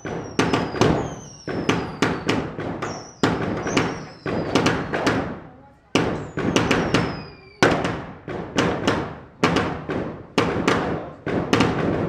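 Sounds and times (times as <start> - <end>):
falling firework whistle: 0.0 - 5.0, 6.2 - 7.9
fireworks bangs: 0.0 - 12.0.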